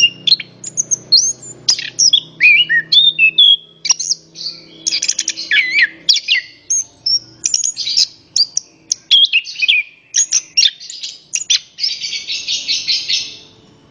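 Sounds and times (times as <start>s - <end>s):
thrush singing: 0.0s - 13.9s.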